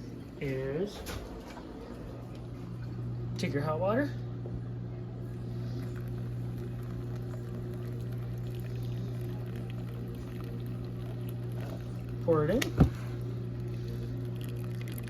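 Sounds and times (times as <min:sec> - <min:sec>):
steady low hum: 0:00.0 - 0:15.0
water bubbling near the boil: 0:05.6 - 0:15.0.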